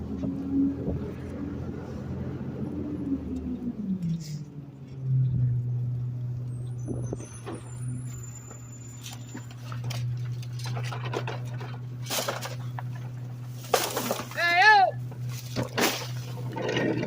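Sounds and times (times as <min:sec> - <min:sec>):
garbage truck engine droning: 0:00.0 - 0:17.0
knocks and rattles: 0:09.4 - 0:14.5, 0:15.1 - 0:17.0.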